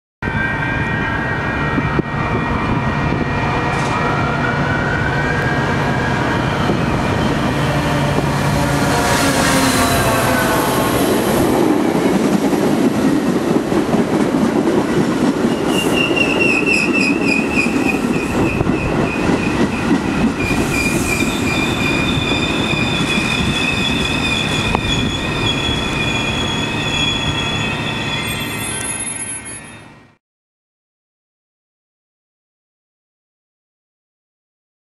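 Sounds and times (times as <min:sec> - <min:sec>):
train wheels rumbling on rails: 0:01.5 - 0:29.6
high wheel squeal: 0:15.5 - 0:19.8, 0:20.4 - 0:30.1.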